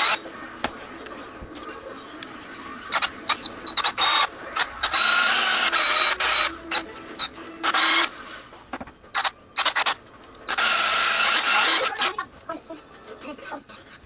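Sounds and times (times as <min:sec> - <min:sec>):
small electric motor whining: 0:02.9 - 0:08.2, 0:09.2 - 0:12.2.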